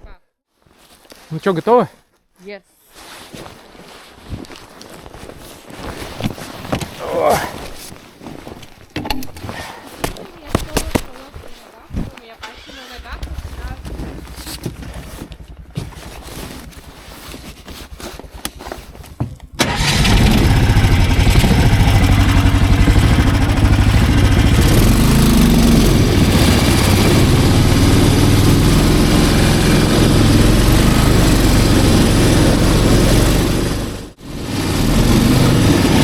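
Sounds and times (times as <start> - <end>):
snowmobile engine running loud: 13.0 - 16.6, 19.8 - 36.0.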